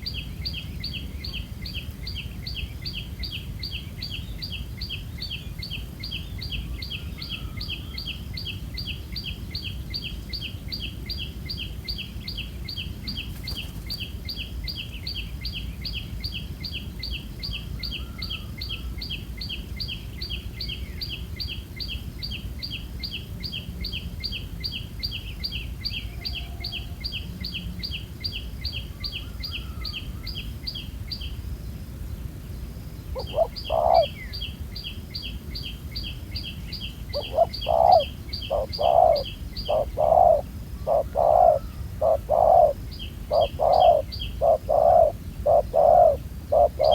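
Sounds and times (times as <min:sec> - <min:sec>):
small bird chirping: 0:33.0 - 0:46.9.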